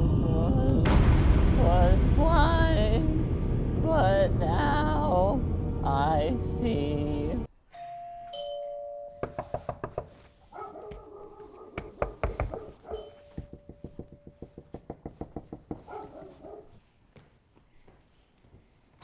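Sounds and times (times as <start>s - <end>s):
two-tone doorbell chime: 7.6s - 9.6s
rapid knocking on a door: 9.2s - 10.2s, 11.8s - 16.1s.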